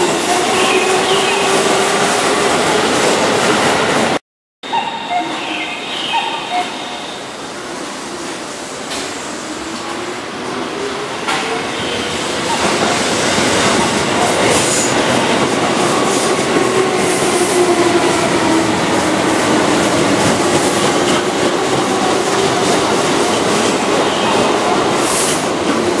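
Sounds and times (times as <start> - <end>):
train wheels rumbling: 5.3 - 26.0.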